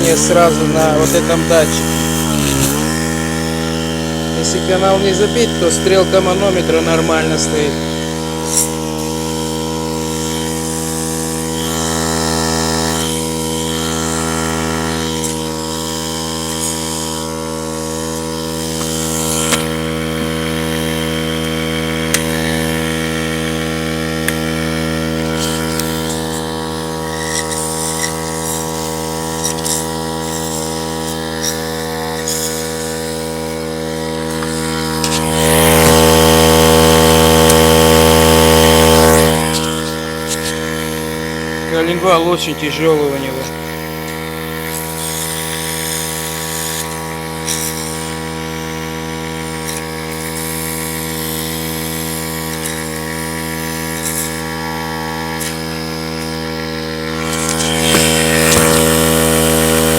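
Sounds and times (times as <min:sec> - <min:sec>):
compressed air hissing: 0:00.0 - 0:10.6, 0:50.1 - 0:59.9
steady hum: 0:00.0 - 0:46.4, 0:51.1 - 0:59.9.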